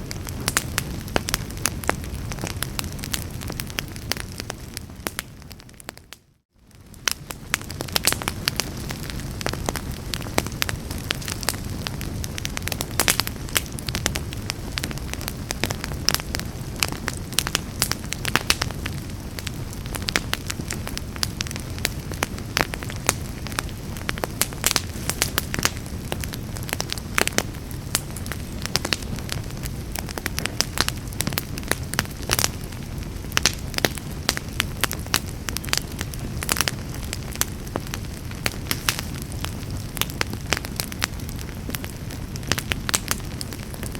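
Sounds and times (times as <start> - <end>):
low rumble of flames: 0.0 - 43.9
wood fire crackling and popping: 0.0 - 43.9.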